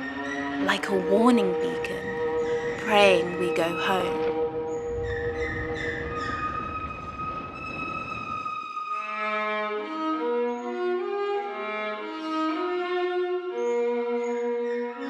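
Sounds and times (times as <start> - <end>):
held high tone: 0.6 - 4.4
slow violin string music: 8.8 - 15.0.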